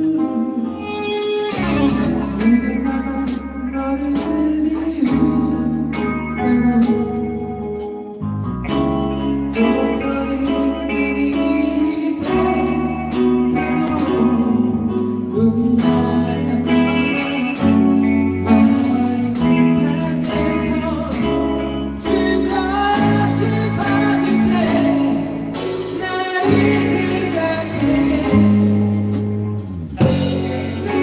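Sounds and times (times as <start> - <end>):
rock band playing: 0.0 - 31.0
drum and cymbal hits: 30.0 - 31.0.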